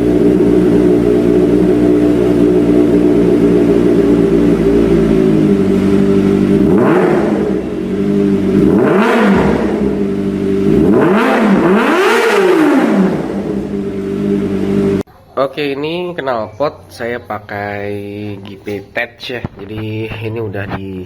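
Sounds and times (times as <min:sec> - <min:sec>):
motorcycle engine idling and revving: 0:00.0 - 0:15.1.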